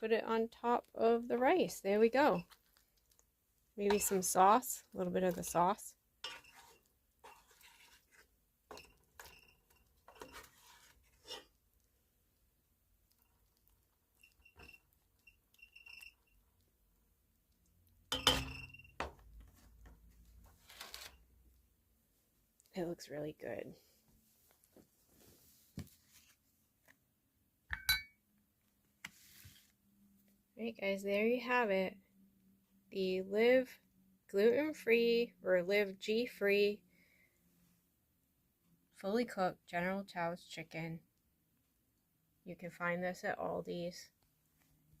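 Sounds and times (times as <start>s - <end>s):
spoon scraping a pan: 3.8s - 11.6s
utensil clinking on a dish: 27.7s - 28.2s.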